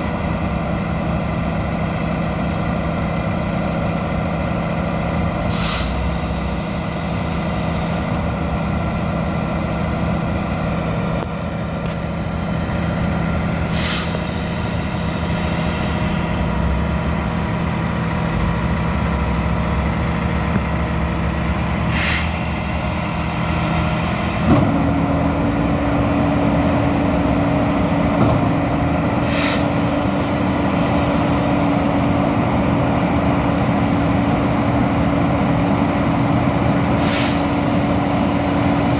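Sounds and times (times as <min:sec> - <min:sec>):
diesel engine running: 0:00.0 - 0:38.9
short hiss: 0:05.5 - 0:08.1, 0:13.6 - 0:16.4, 0:21.8 - 0:24.4, 0:29.2 - 0:31.0, 0:37.0 - 0:38.7.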